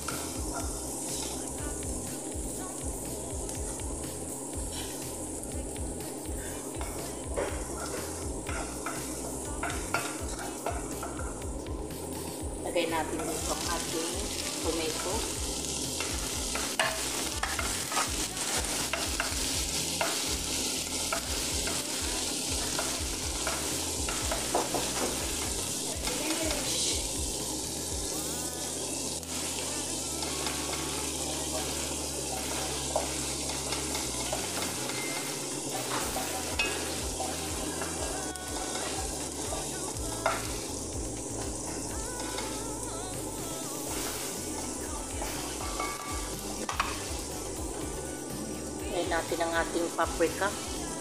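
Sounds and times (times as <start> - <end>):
vegetables sizzling in a wok: 0.0 - 51.0.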